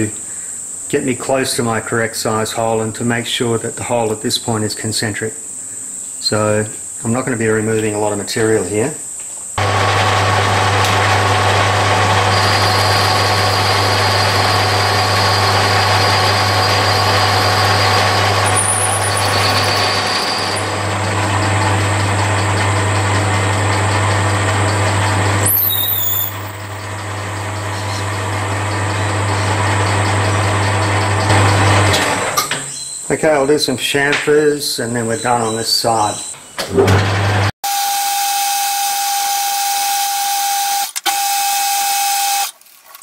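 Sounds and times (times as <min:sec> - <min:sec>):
lathe motor hum: 0:09.6 - 0:32.4.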